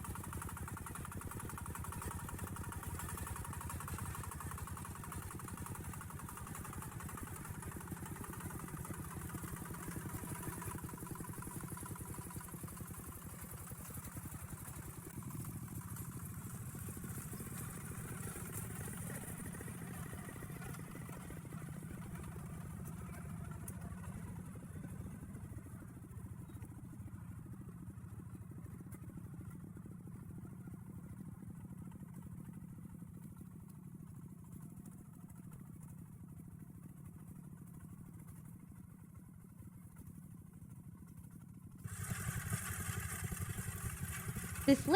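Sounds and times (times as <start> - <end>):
tractor engine chugging: 0.0 - 44.9.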